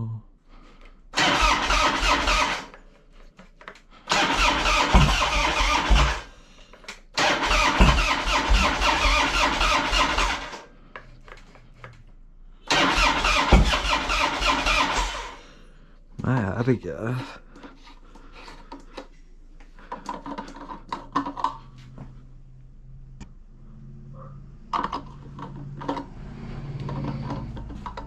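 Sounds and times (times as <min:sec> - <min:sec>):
motorcycle starter cranking engine: 0:01.2 - 0:02.8, 0:04.1 - 0:06.4, 0:07.2 - 0:10.7, 0:12.7 - 0:15.5.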